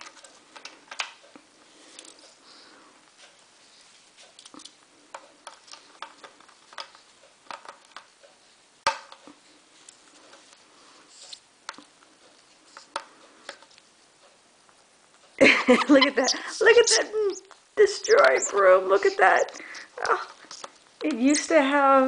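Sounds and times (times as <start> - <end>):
parrot chewing on broom: 0.0 - 15.4, 16.2 - 21.0.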